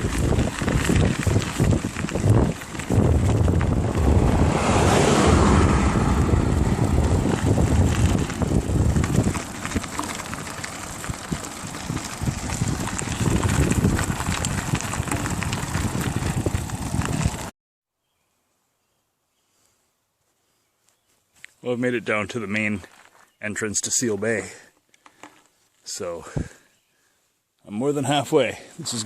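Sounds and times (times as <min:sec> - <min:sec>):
bicycle clicks and rattles: 0:00.0 - 0:03.8, 0:07.0 - 0:17.5
low rumble: 0:00.0 - 0:17.5
wind rushing over microphone: 0:00.0 - 0:17.5.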